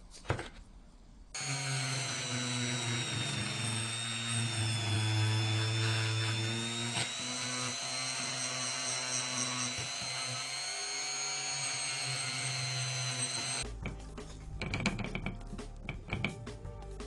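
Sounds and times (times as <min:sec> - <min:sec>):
power tool whining: 0:01.4 - 0:13.6.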